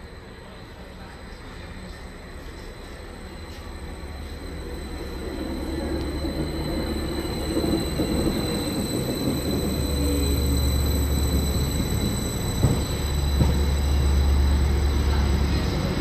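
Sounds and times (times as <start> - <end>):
train rumbling: 0.0 - 16.0
wheels squealing on rails: 0.0 - 16.0.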